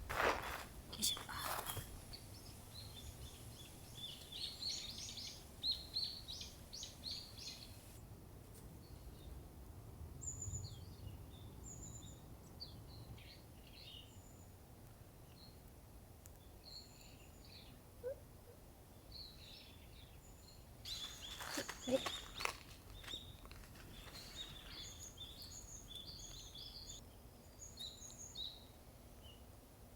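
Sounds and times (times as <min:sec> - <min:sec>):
faint low outdoor rumble: 0:00.0 - 0:29.8
small birds chirping: 0:00.2 - 0:08.0, 0:15.2 - 0:29.5.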